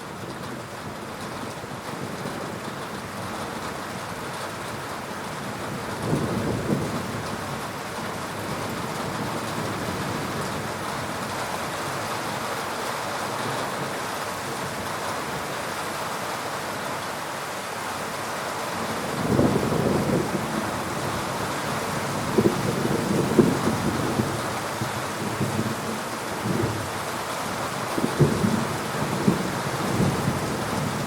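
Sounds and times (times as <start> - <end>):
heavy rain falling: 0.0 - 31.0
low rumble of thunder: 5.6 - 7.7, 19.0 - 26.9, 27.9 - 31.0.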